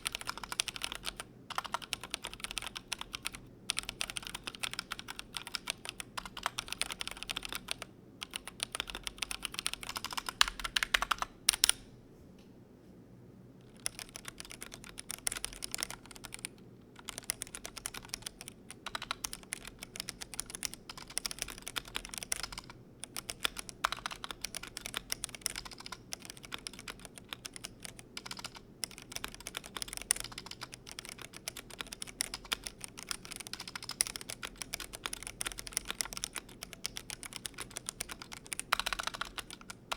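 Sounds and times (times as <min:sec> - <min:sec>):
mechanical keyboard typing: 0:00.0 - 0:11.8, 0:13.6 - 0:39.9.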